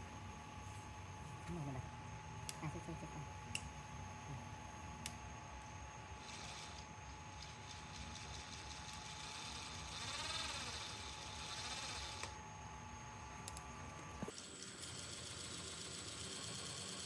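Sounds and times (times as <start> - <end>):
small electric motor running: 5.9 - 12.4, 14.2 - 17.0
click: 13.4 - 13.6.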